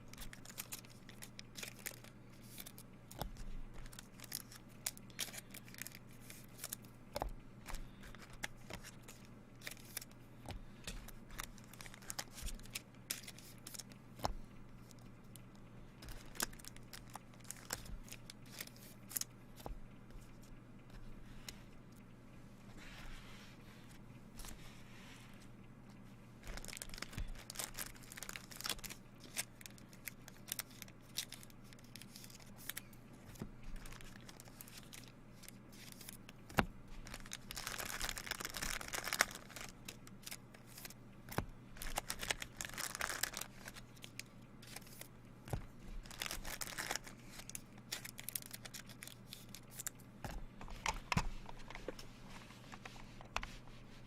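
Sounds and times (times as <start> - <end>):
wrappers crinkling and tearing: 0.0 - 6.8, 7.7 - 10.2, 11.1 - 13.9, 16.0 - 19.3, 26.4 - 36.2, 36.9 - 45.1, 46.0 - 49.9
steady low hum: 0.0 - 54.0.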